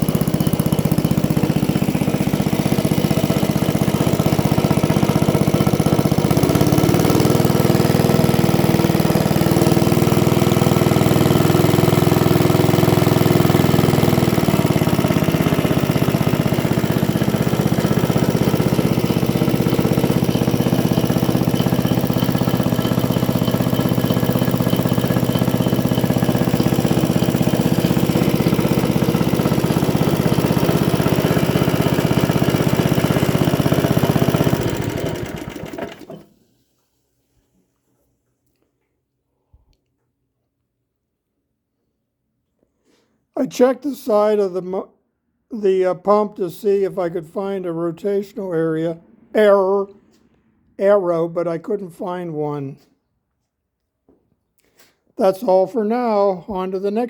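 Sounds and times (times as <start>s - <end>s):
small engine driving water pump: 0.0s - 36.4s.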